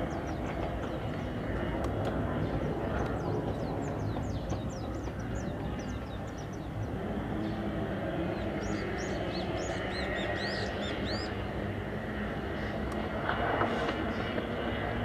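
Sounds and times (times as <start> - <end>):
small birds chirping: 0.0 - 7.6, 8.2 - 11.4
low outdoor rumble: 0.0 - 15.0.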